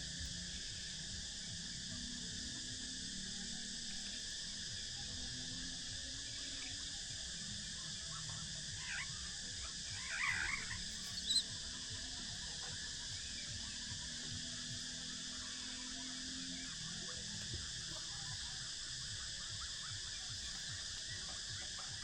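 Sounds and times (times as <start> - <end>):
high-pitched insect chorus: 0.0 - 22.0
bird chirps: 10.0 - 11.6.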